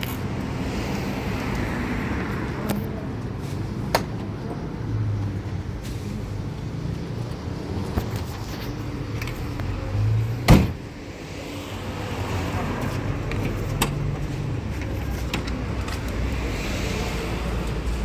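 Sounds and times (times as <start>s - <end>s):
loud sharp thump: 10.5s - 10.8s.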